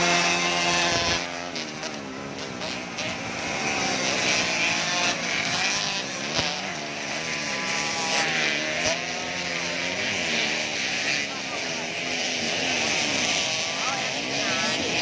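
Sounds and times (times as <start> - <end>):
motocross bikes racing: 0.0 - 15.0.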